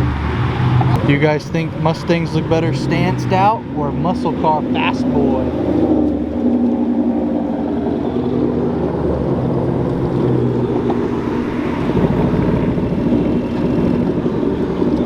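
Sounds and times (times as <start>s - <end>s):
car engines running low: 0.0s - 15.0s
deeper rumble: 0.0s - 15.0s.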